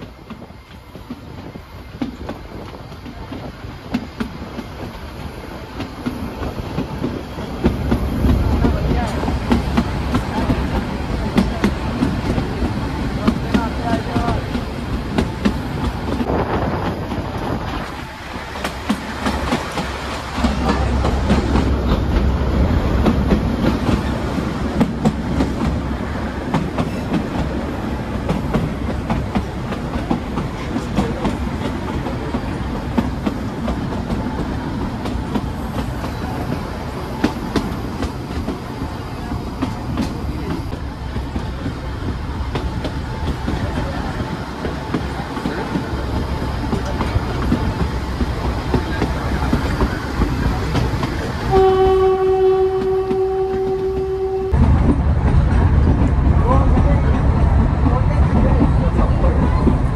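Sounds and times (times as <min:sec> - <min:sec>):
clickety-clack of rail joints: 0:00.0 - 0:59.9
train wheels rumbling on track: 0:00.0 - 0:59.9.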